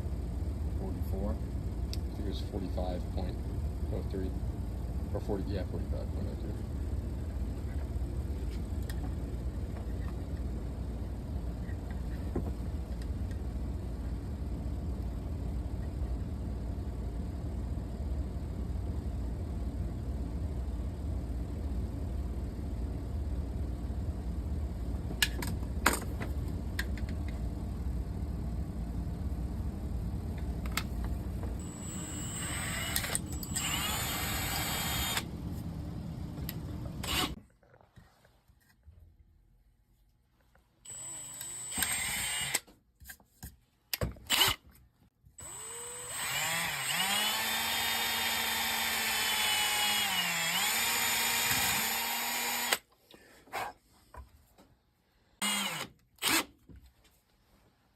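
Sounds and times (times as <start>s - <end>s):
steady low rumble: 0.0s - 37.1s
small power tool whine: 31.6s - 35.3s, 36.9s - 37.4s, 40.9s - 42.6s, 45.4s - 52.8s, 55.4s - 56.5s.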